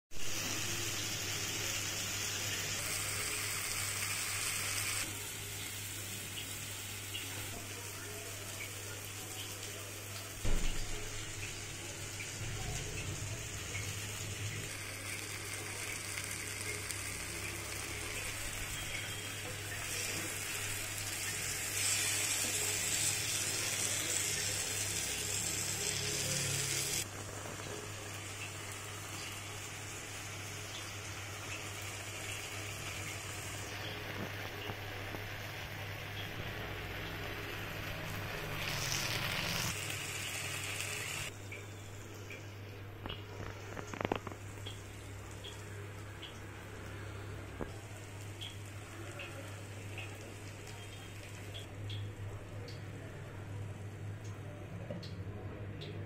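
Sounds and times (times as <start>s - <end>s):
sauce sizzling in a pan: 0.2s - 42.1s.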